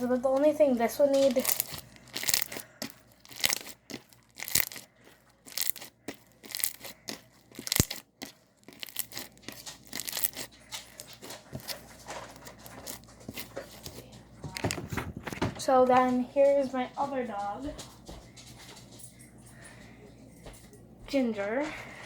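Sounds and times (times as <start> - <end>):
slime squished by hand: 1.1 - 11.8.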